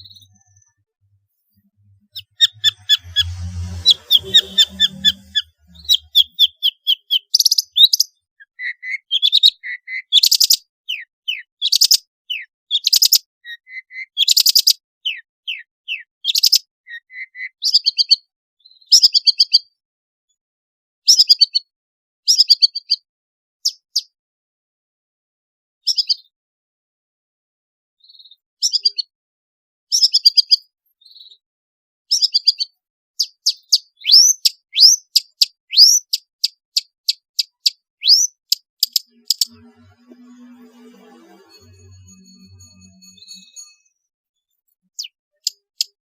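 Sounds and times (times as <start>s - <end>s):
bird singing chattering and whistles: 2.0s - 18.0s, 32.2s - 39.6s.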